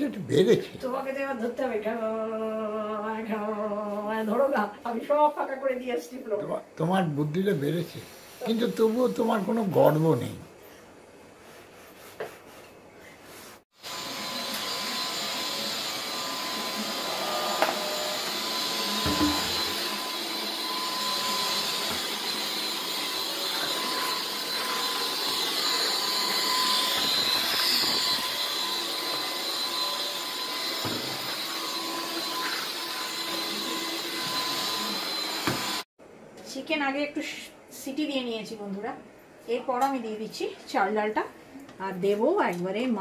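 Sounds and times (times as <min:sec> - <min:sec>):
pressure cooker whistling steam: 0:13.8 - 0:35.8.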